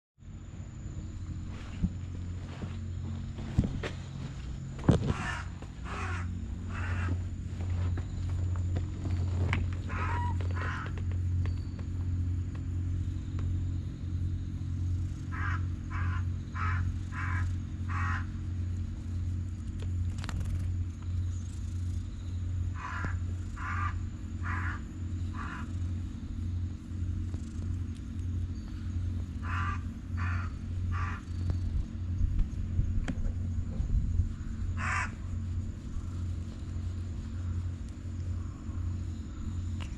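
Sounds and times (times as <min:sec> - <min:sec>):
low machine hum: 0:00.2 - 0:39.9
crows cawing: 0:04.9 - 0:07.4, 0:09.7 - 0:11.2, 0:15.3 - 0:18.5, 0:22.7 - 0:25.8, 0:29.4 - 0:31.5, 0:34.4 - 0:35.4.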